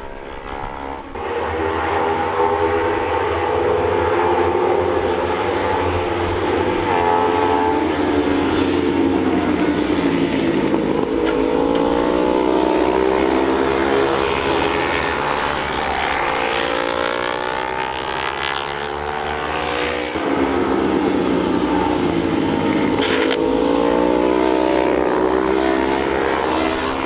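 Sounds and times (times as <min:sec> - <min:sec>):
race motorcycles revving: 0:00.0 - 0:27.0.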